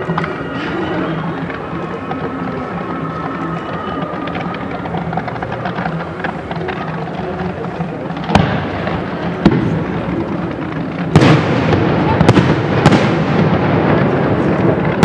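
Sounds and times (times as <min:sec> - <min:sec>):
continuous rumble: 0:00.0 - 0:15.0
firework bangs: 0:04.0 - 0:15.0.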